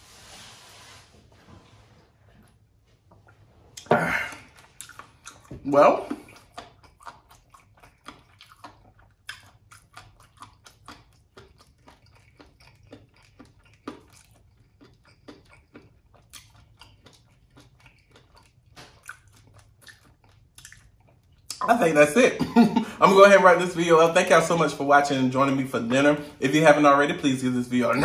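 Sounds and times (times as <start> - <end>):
wet chewing mouth sounds: 3.2 - 21.7.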